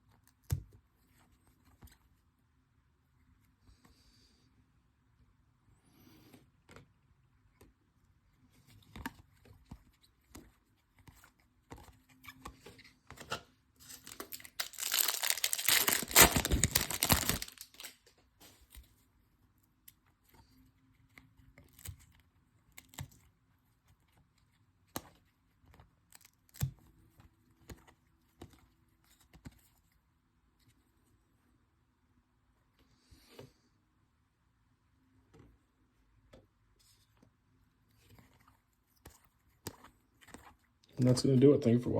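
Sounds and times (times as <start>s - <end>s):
cards rustling and clicking: 8.5s - 19.0s
foil pack tearing and crinkling: 13.8s - 18.0s.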